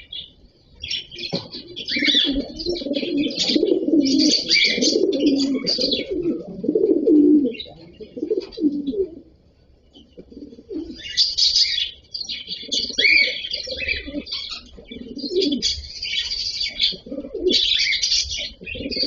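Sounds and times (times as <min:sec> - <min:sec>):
cockatiels chirping: 0:00.9 - 0:06.4, 0:10.8 - 0:19.0
low cooing: 0:01.3 - 0:09.4, 0:10.2 - 0:11.2, 0:12.6 - 0:15.9, 0:16.7 - 0:19.0.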